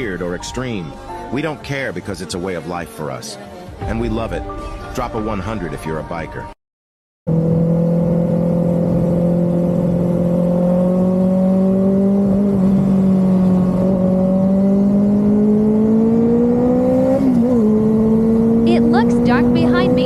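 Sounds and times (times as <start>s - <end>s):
motorcycle engine accelerating: 7.3s - 20.0s.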